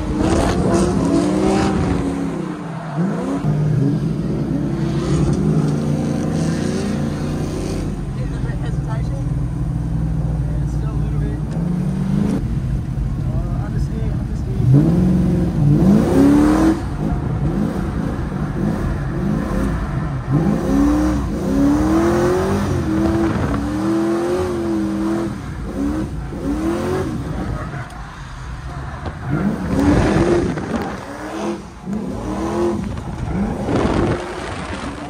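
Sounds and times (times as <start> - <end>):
car engine revving hard: 0.0 - 8.0, 14.6 - 27.8, 28.6 - 35.0.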